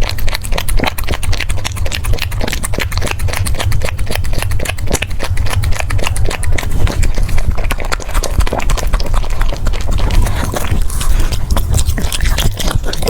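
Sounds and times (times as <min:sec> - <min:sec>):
dog chewing and smacking: 0:00.0 - 0:13.0
steady low rumble: 0:00.1 - 0:13.0.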